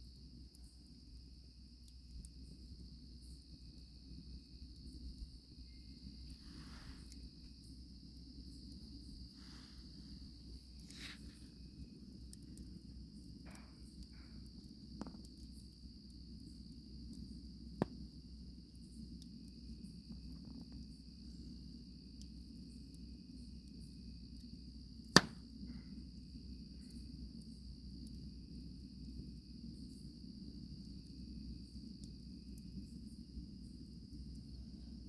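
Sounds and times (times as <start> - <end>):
campfire crackling: 0.0 - 35.0
crickets chirring: 0.0 - 35.0
burning wood popping: 1.6 - 24.4, 25.0 - 26.3.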